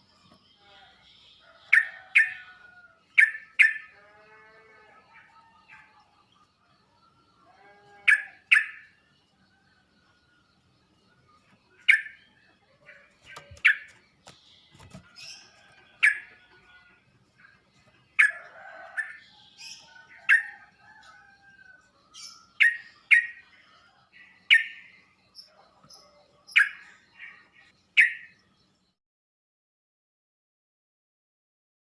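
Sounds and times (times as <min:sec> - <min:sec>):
bird calling: 0:07.6 - 0:09.0, 0:11.7 - 0:16.5.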